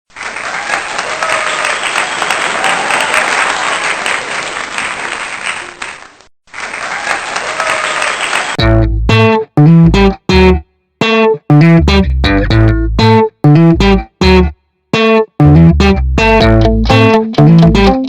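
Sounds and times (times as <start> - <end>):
crowd applauding: 0.1 - 8.6.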